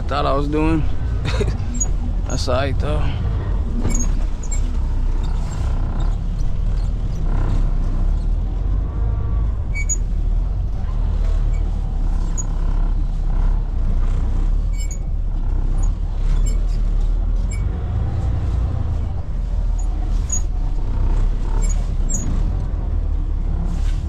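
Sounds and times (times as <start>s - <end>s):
truck diesel engine rumbling: 0.0s - 24.0s.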